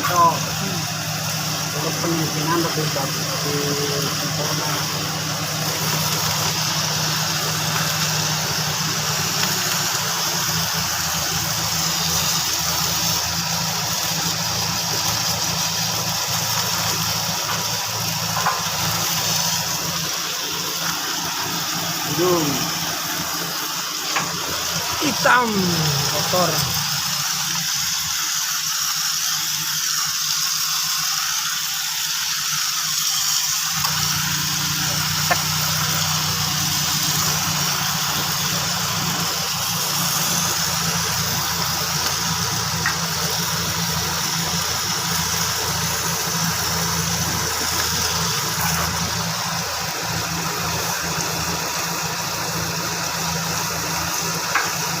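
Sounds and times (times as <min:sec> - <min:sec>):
car engine idling: 0:00.0 - 0:55.0
steady hiss: 0:00.0 - 0:55.0.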